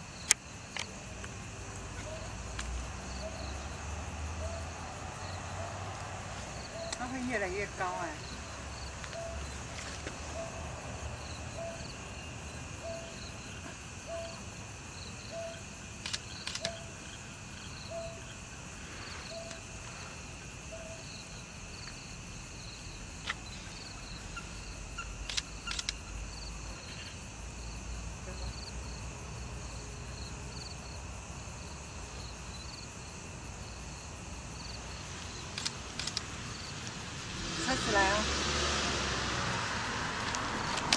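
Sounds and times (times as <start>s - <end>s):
insects chirping in high pips: 0.0s - 40.9s
sharp clicks: 16.0s - 16.9s, 25.2s - 26.1s, 35.5s - 36.3s, 40.2s - 40.9s.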